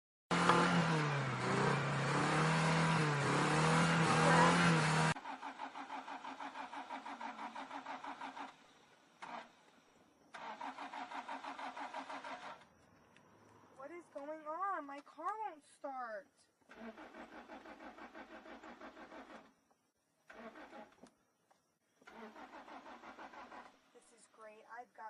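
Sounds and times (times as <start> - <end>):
car engine revving: 0.3 - 8.6
starter cranking engine: 0.3 - 12.7, 16.6 - 19.6, 20.3 - 21.1, 22.0 - 23.9.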